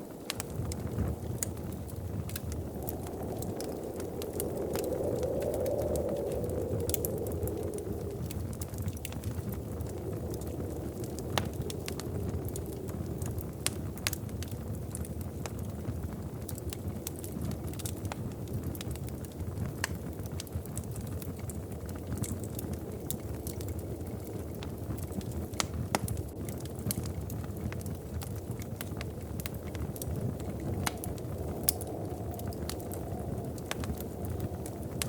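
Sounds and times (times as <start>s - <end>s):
wood fire crackling: 0.0s - 35.0s
low rumble: 0.4s - 15.2s.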